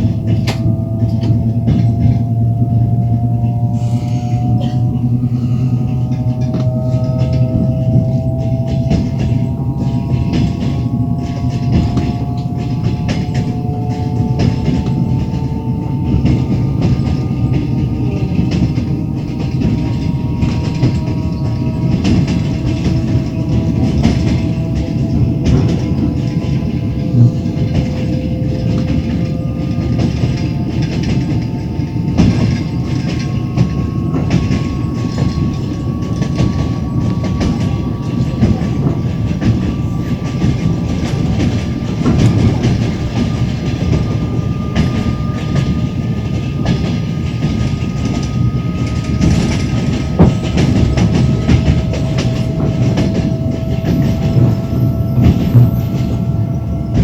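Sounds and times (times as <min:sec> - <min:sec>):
train wheels clicking over rail joints: 0:00.0 - 0:57.0.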